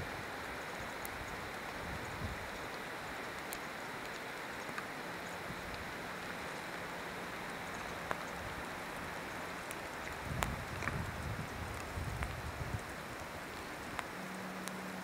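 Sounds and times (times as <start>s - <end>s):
light rain hissing: 0.0s - 15.0s
raindrops ticking: 0.0s - 15.0s.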